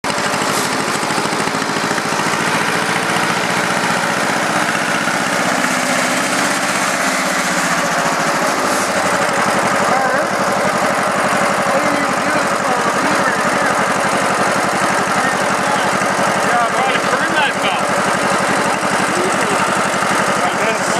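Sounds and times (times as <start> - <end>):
tractor engine running: 0.0 - 20.9.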